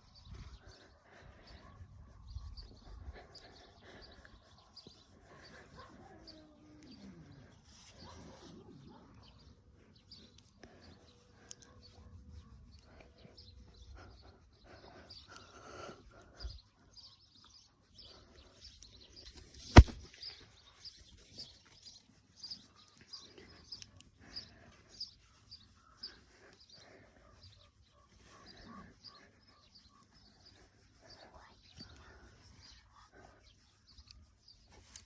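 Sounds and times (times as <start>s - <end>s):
small birds chirping: 0.0s - 35.0s
sharp loud click: 19.6s - 20.1s.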